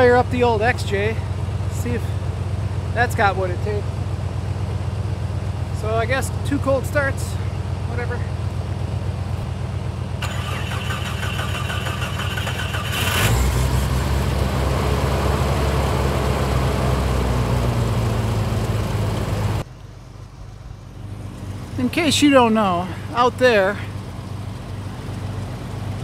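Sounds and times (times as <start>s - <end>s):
another engine idling: 0.0s - 26.0s
car engine running: 0.0s - 26.0s
starter motor cranking: 10.2s - 13.8s.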